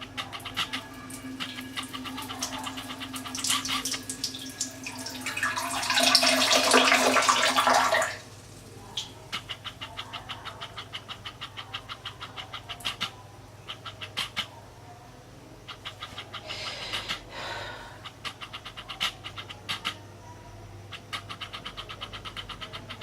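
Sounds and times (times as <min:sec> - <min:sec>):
water gushing into toilet bowl: 0:00.0 - 0:08.5
rapid short clicks: 0:20.9 - 0:23.0.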